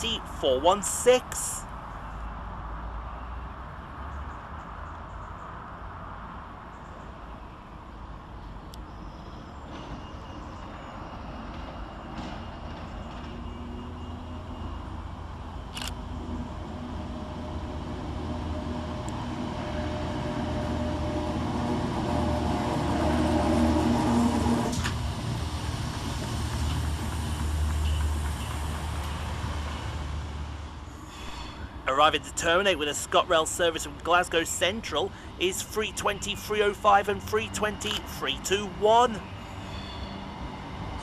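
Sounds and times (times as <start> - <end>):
electric train motors humming: 13.9 - 29.5.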